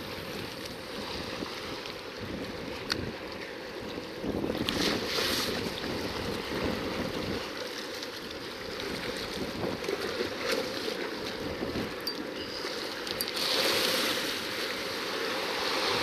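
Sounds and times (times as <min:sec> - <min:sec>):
sea washing against rocks: 0:00.0 - 0:16.0
wind buffeting microphone: 0:03.9 - 0:07.5, 0:08.8 - 0:10.4, 0:11.3 - 0:12.1.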